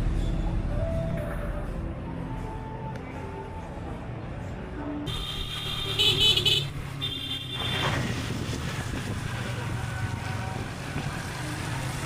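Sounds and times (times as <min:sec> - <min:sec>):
wind noise on microphone: 0:07.6 - 0:11.6.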